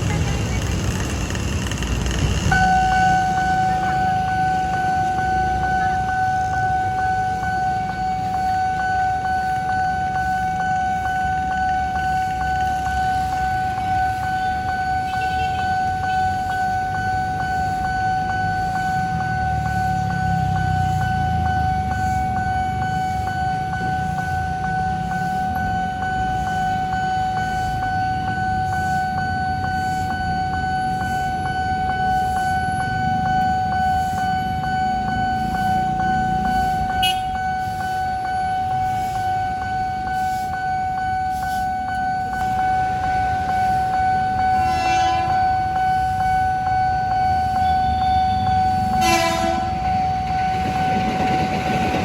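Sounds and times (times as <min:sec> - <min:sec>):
train rumbling past: 0:00.0 - 0:14.9, 0:15.9 - 0:52.0
level-crossing alarm ringing: 0:00.0 - 0:52.0
train horn blasts: 0:36.9 - 0:37.4, 0:44.4 - 0:45.8, 0:48.3 - 0:50.0.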